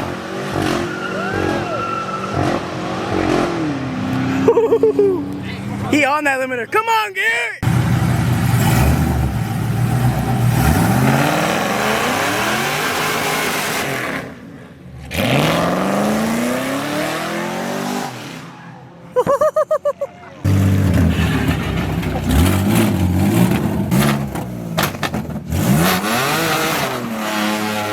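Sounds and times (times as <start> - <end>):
car engine accelerating hard: 7.6 - 14.4, 15.0 - 18.5, 20.5 - 27.9.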